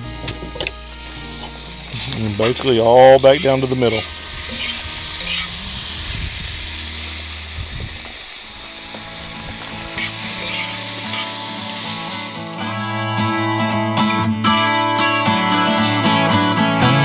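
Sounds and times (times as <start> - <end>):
soft guitar music: 0.0 - 17.0
bacon sizzling in a pan: 0.8 - 12.6
utensil scraping a pan: 1.3 - 6.0, 9.8 - 12.2.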